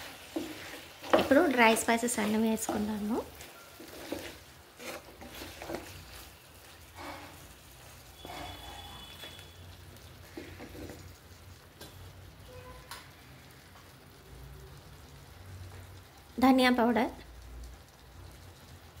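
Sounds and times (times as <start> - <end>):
chicken sizzling in a pan: 0.0 - 19.0.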